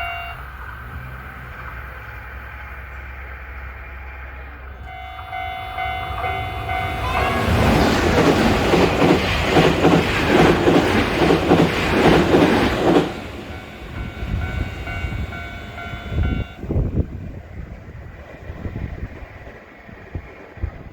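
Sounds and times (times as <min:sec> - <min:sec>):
level crossing warning bell: 0:00.0 - 0:00.6, 0:04.8 - 0:08.6, 0:13.0 - 0:16.7
train wheels clacking: 0:04.8 - 0:17.1.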